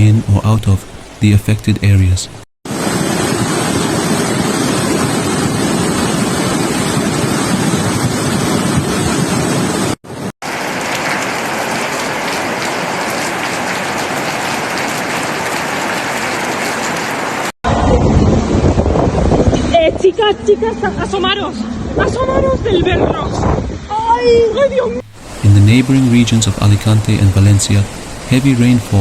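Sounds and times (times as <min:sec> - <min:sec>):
heavy rain pouring: 0:02.7 - 0:17.6, 0:25.1 - 0:29.0.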